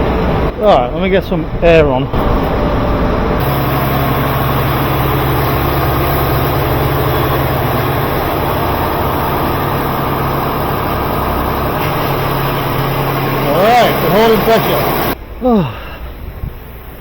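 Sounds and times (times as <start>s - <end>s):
air compressor humming: 3.4s - 15.2s.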